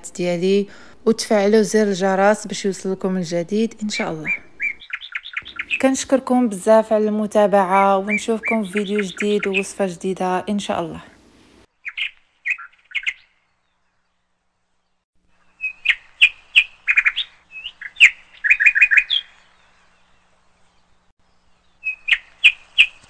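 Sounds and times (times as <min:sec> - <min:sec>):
small bird chirping: 0:02.7 - 0:06.2, 0:08.0 - 0:09.9, 0:11.7 - 0:23.0.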